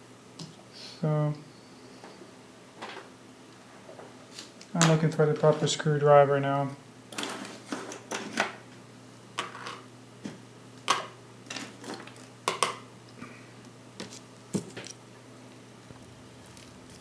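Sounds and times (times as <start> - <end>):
low steady hum: 8.8 - 17.0.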